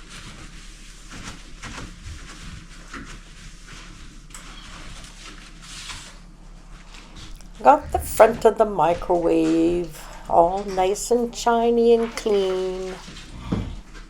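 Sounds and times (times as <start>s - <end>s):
cloth wiping a microwave: 0.0s - 13.3s.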